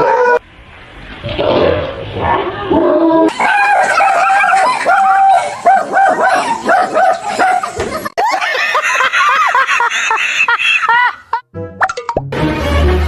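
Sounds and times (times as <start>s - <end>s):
dog barking and yipping: 0.0s - 0.4s, 3.3s - 8.0s.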